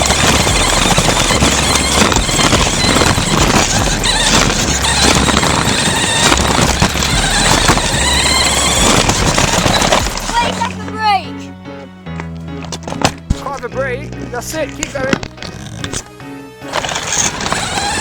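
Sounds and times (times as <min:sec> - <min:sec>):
rc truck rushing and rattling: 0:00.0 - 0:11.2, 0:12.6 - 0:18.0
squealing whines: 0:00.0 - 0:11.2, 0:14.2 - 0:18.0.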